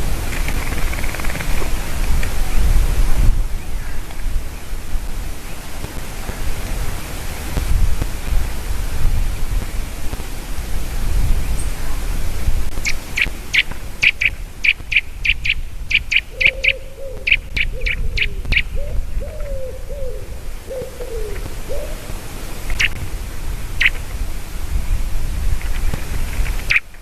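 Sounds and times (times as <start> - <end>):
steady background hiss: 0.0 - 27.0
wavering sliding bird calls: 0.3 - 1.7, 12.8 - 23.0
eaglet calling: 0.3 - 1.8, 12.7 - 23.0, 23.8 - 24.0.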